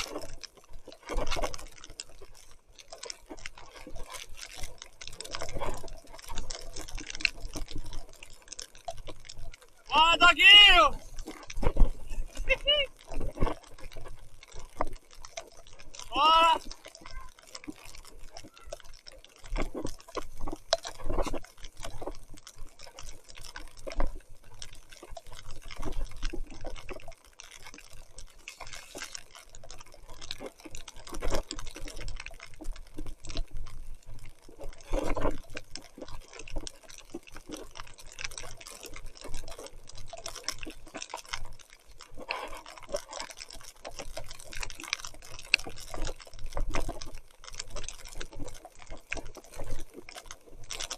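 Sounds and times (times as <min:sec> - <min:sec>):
bike tyres splashing through mud: 0:09.8 - 0:13.0
heavy rain: 0:09.8 - 0:13.3, 0:16.0 - 0:17.5.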